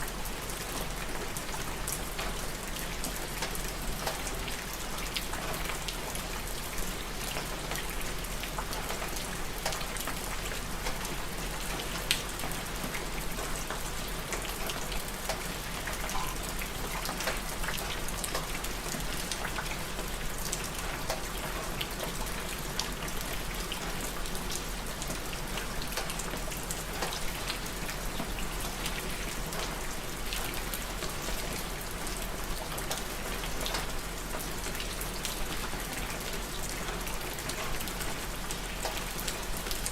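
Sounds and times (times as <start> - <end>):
steady rain hiss: 0.0 - 39.9
raindrops ticking: 15.2 - 18.5.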